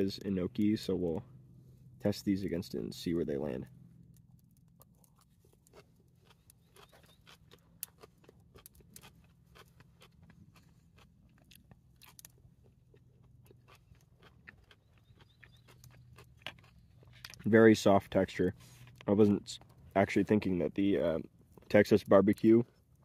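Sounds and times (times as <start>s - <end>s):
low steady hum: 0.0s - 23.0s
faint close-up chewing crunches: 4.0s - 17.6s, 18.5s - 20.0s.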